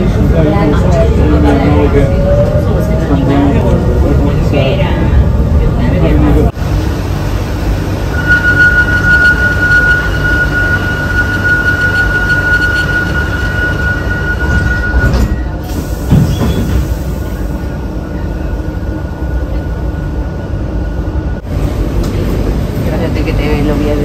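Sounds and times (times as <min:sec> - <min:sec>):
train low rumble: 0:00.0 - 0:24.0
thin high whine: 0:08.1 - 0:14.5.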